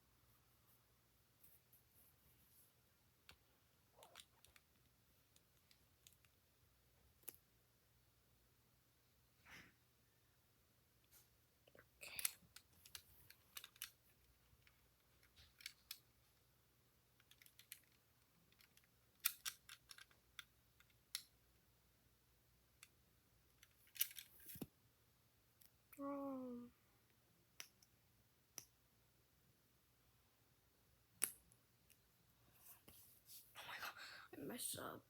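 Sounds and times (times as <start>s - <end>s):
plastic pieces clicking and rattling: 12.1s - 16.1s, 17.2s - 21.3s, 23.6s - 24.6s.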